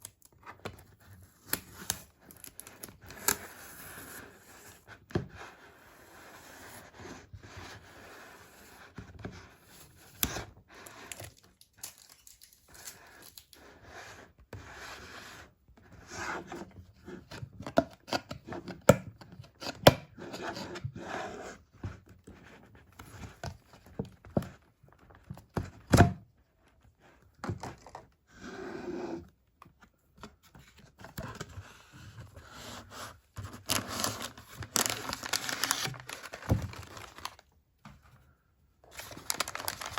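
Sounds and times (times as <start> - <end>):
packaging tearing and crinkling: 11.1 - 13.6, 33.6 - 37.5, 38.9 - 39.9.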